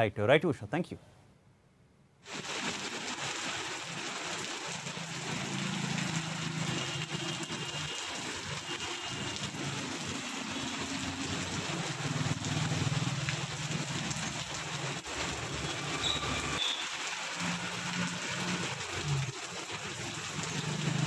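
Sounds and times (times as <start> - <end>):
rain on a wet road: 2.3 - 21.0
motorcycle passing: 10.8 - 13.8.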